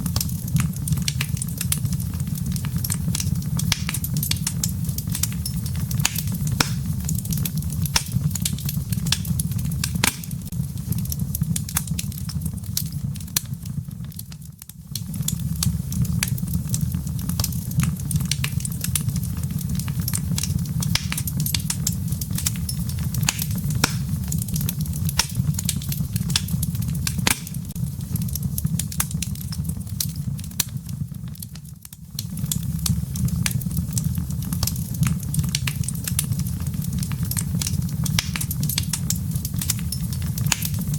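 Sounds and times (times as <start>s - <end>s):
fire rumbling: 0.0s - 40.9s
wood crackling and popping: 0.0s - 40.9s.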